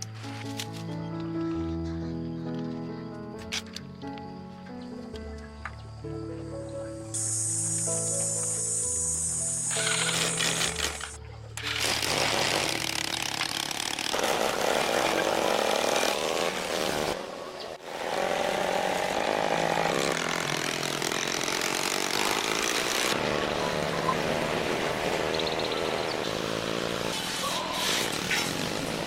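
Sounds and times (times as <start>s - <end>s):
motorcycle engine buzzing: 7.2s - 15.5s, 17.8s - 29.0s.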